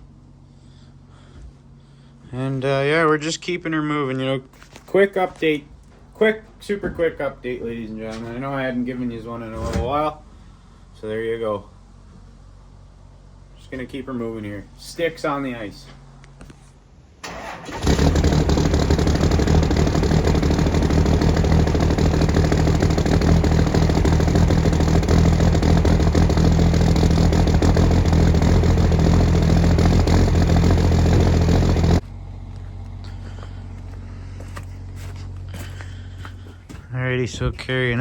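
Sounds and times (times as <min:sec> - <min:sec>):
low steady hum: 0:00.0 - 0:17.3, 0:18.4 - 0:38.0
engine running: 0:17.2 - 0:38.0.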